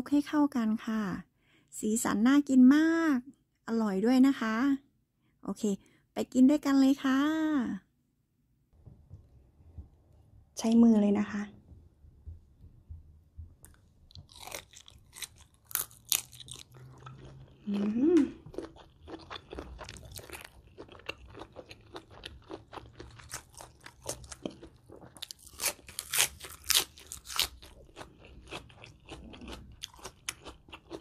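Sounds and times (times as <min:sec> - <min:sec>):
crunching and chewing lettuce: 0:13.6 - 0:31.0
person humming: 0:17.7 - 0:18.4.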